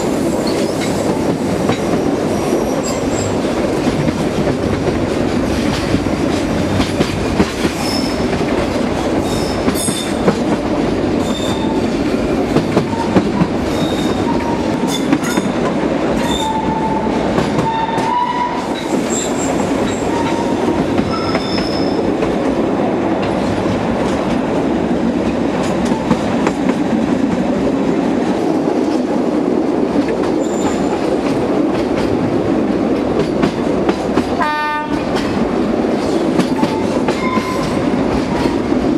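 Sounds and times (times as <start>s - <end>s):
train wagons rumbling: 0.0s - 38.9s
wheels squealing against rails: 1.9s - 3.4s, 7.6s - 8.3s, 9.2s - 10.2s, 11.2s - 11.8s, 12.9s - 15.6s, 16.2s - 22.1s, 30.4s - 31.0s, 36.6s - 37.8s.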